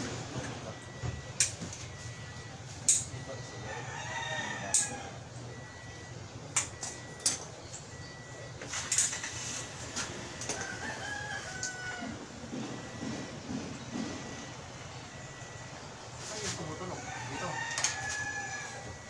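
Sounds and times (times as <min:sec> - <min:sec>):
rooster crowing: 0:03.2 - 0:05.9, 0:10.4 - 0:13.0, 0:16.7 - 0:19.0.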